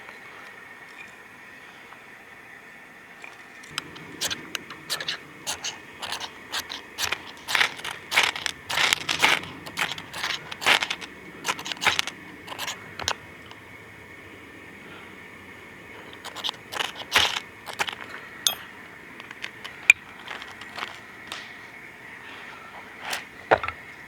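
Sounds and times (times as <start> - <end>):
fire steel rod scraping: 3.7 - 13.6, 16.0 - 21.0.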